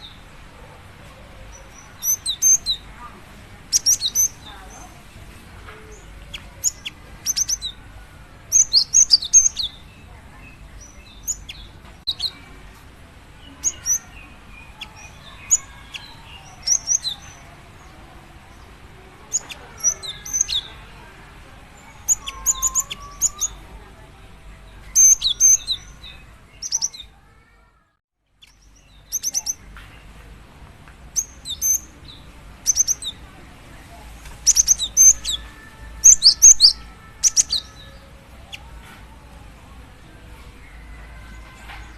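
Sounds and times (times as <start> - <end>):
faint lower bird song: 0.0 - 41.9.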